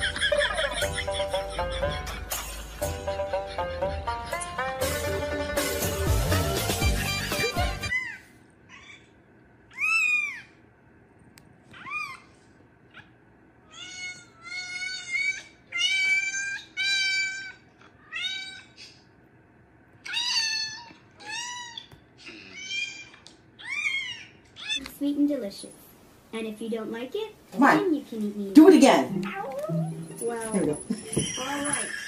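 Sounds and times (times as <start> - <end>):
cat meowing: 20.0 - 24.8, 29.2 - 30.0.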